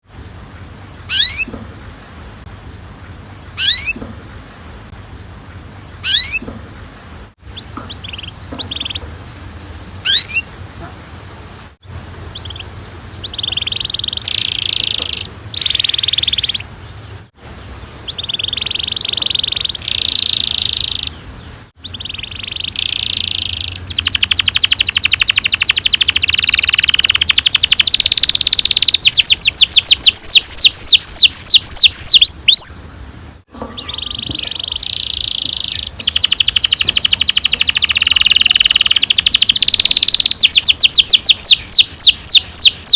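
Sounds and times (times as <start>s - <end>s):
canary singing: 1.0s - 1.6s, 3.6s - 4.0s, 6.0s - 6.5s, 7.5s - 9.1s, 10.0s - 10.6s, 12.2s - 17.2s, 18.0s - 32.9s, 33.6s - 42.9s.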